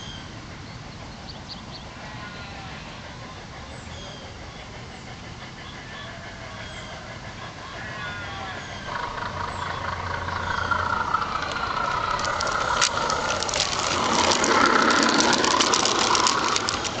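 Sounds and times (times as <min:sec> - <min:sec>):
model train whine: 0:00.0 - 0:17.0
rapid clicking: 0:08.8 - 0:17.0.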